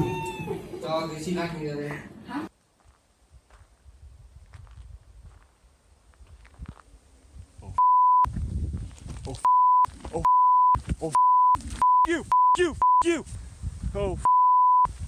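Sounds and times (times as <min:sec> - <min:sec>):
censor bleep: 0:07.8 - 0:08.3, 0:09.4 - 0:13.1, 0:14.2 - 0:14.9
person shouting: 0:12.1 - 0:13.2.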